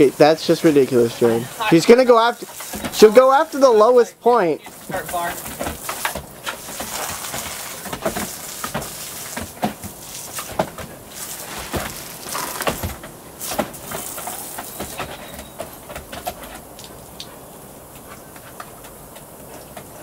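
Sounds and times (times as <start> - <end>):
water splattering: 0.0 - 15.2
garden hose spraying: 0.0 - 20.0.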